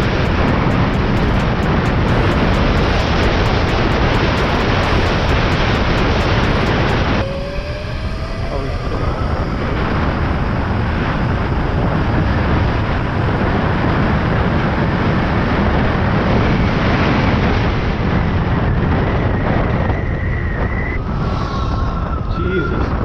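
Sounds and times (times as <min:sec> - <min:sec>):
faint high whine: 0:00.0 - 0:13.1
wind rushing over microphone: 0:00.0 - 0:23.0.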